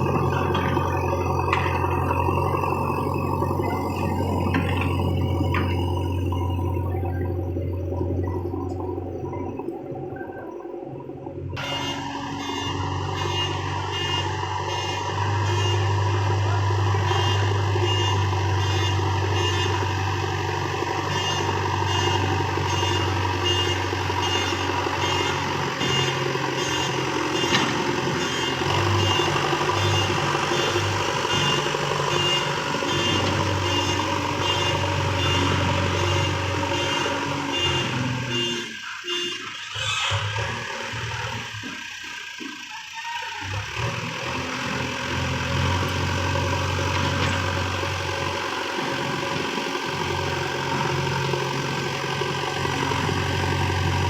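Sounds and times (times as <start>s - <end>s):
reversing alarm beeps: 0.0s - 10.7s, 11.6s - 39.8s
diesel engine running under load: 0.0s - 54.0s.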